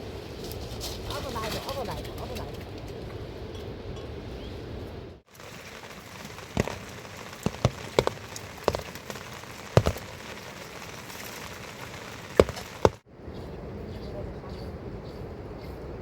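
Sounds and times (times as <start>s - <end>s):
steady rain falling: 5.2s - 13.0s.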